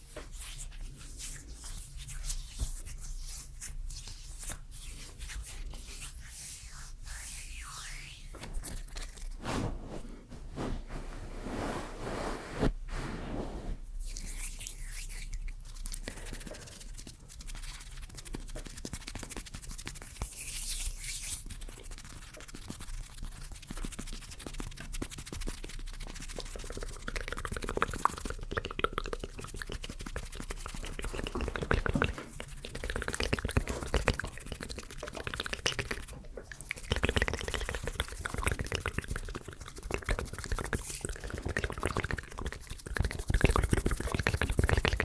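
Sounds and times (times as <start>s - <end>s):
hand sounds: 8.3s - 13.8s
wet mouth clicks: 24.8s - 45.0s.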